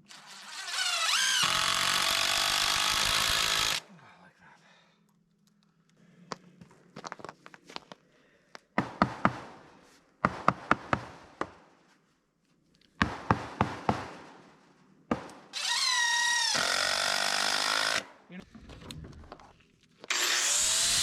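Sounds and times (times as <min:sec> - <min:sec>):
cordless drill driving a screw: 0:00.1 - 0:03.8, 0:15.6 - 0:18.1, 0:20.1 - 0:21.0.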